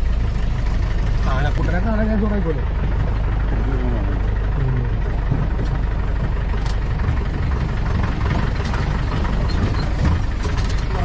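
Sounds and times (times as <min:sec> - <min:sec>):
jeep engine running: 0:00.0 - 0:11.0
vehicle knocking over bumps: 0:01.5 - 0:11.0.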